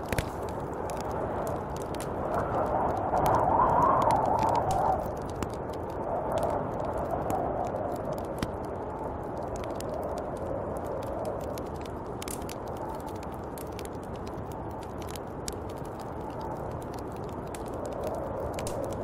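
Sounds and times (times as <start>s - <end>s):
wind rushing: 0.0s - 8.4s
light ticks and crackles: 0.0s - 19.0s.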